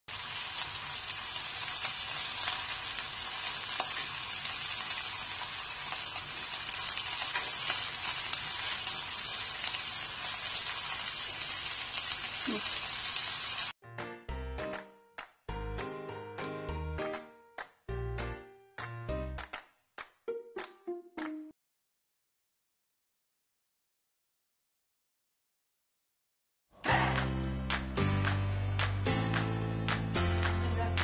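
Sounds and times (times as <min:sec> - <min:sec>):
food sizzling in a pan: 0:00.1 - 0:13.8.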